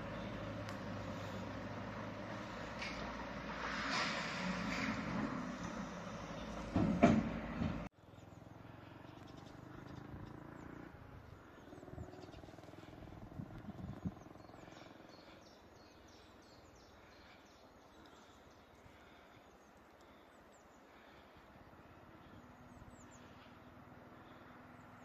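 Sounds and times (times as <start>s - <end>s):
small birds chirping: 0.0s - 1.6s, 8.0s - 25.0s.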